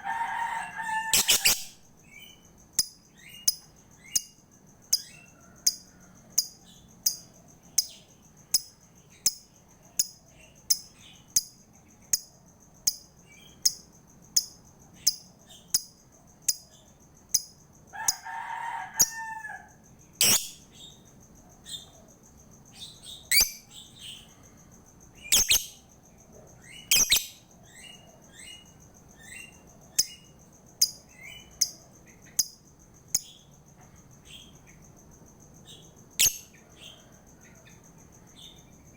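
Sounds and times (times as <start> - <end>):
lovebird chirping and shrieking: 1.1 - 1.8, 20.2 - 20.6, 23.3 - 23.7, 25.3 - 25.8, 26.8 - 27.4, 36.2 - 36.5.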